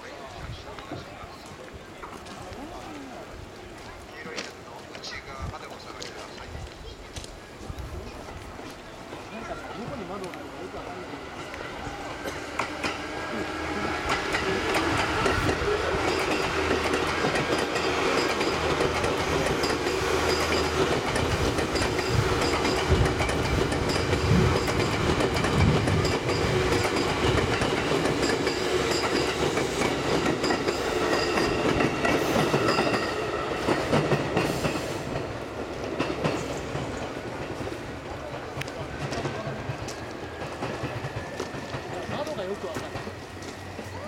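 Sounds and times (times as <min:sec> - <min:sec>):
electric train running hum: 0:08.0 - 0:44.0
wheels clacking over rail joints: 0:10.1 - 0:44.0.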